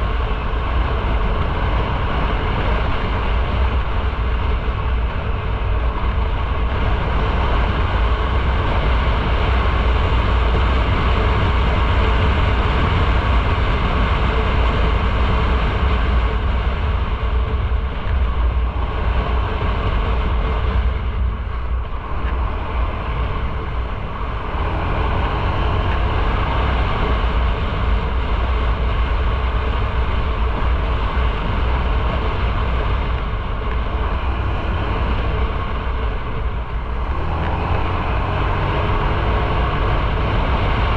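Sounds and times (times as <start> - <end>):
motorcycle engine drone: 0.0 - 40.9
wind and road noise: 0.0 - 40.9.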